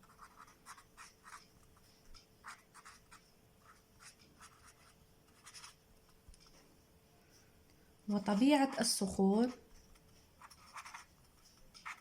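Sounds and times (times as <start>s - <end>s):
pen scratching handwriting: 0.0s - 1.5s, 2.4s - 5.8s, 8.3s - 12.0s.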